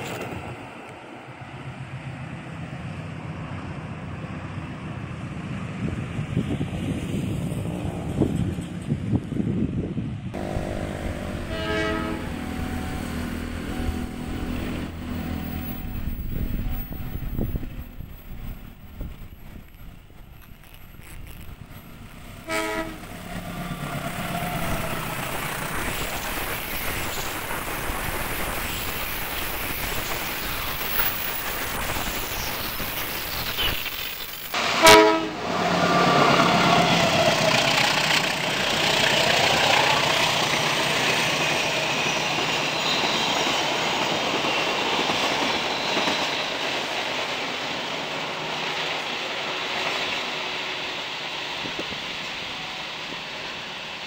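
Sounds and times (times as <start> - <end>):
train running rumble: 0.0 - 54.0
locomotive horn blast: 10.4 - 17.6, 22.4 - 25.0, 34.6 - 37.8.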